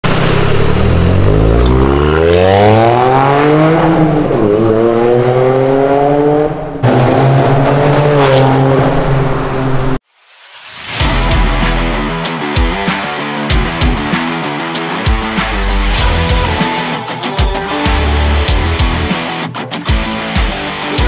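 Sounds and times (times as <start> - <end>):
car engine accelerating hard: 0.0 - 10.0.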